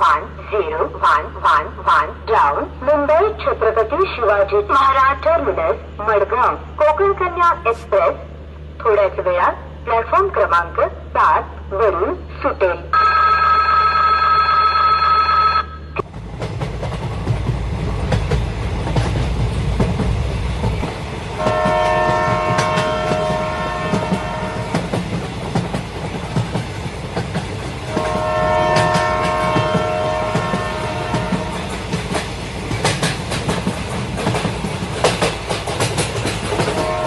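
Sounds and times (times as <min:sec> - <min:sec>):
train rumble and clickety-clack: 0:00.0 - 0:12.9, 0:16.0 - 0:37.0
train horn blasts: 0:21.4 - 0:24.9, 0:27.9 - 0:31.7, 0:36.6 - 0:37.0.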